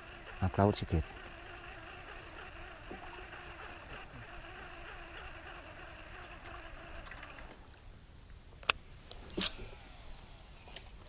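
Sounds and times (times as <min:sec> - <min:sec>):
small boat motor running: 0:00.0 - 0:07.7.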